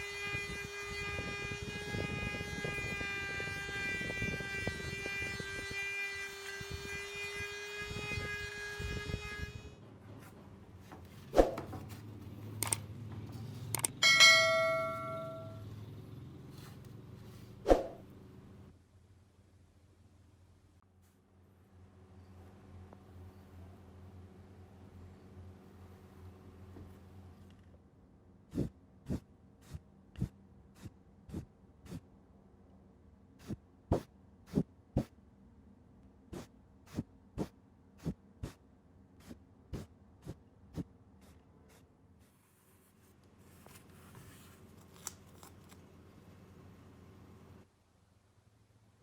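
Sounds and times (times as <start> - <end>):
bright metallic ring: 14.0 - 15.8.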